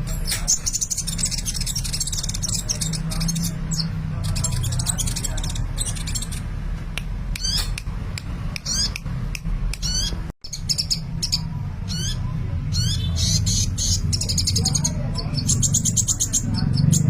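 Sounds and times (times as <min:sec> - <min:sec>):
sunbird singing: 0:00.1 - 0:06.5, 0:09.7 - 0:17.0.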